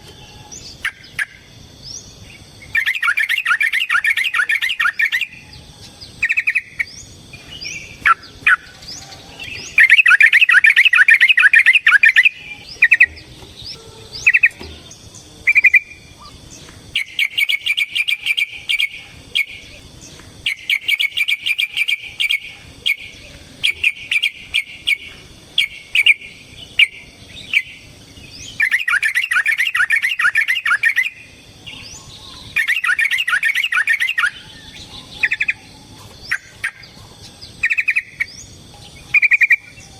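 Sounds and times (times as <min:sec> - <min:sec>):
bird chirps: 0:00.0 - 0:39.9.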